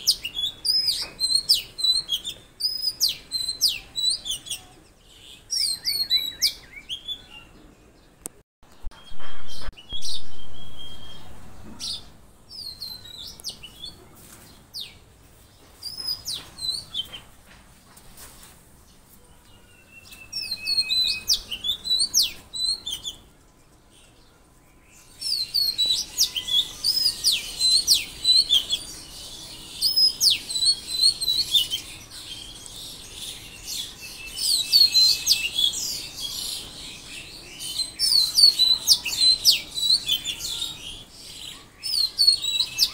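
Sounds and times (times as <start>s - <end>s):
birds chirping and whistling: 0.0s - 17.4s, 19.4s - 42.9s
loud sound: 8.9s - 12.3s.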